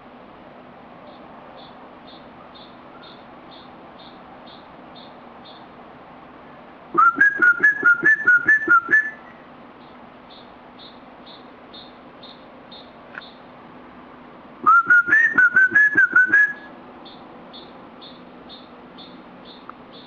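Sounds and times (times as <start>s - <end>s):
whistled phrases: 7.0s - 9.3s, 14.6s - 16.7s.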